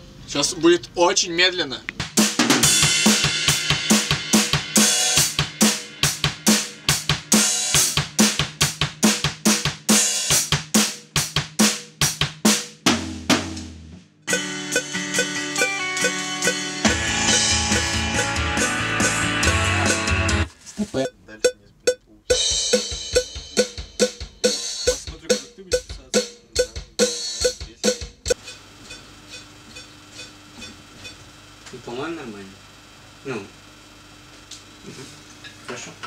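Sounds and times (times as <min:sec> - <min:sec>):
pitched tones over drums: 0:01.9 - 0:10.6, 0:14.3 - 0:32.2
drum kit playing: 0:01.9 - 0:32.3.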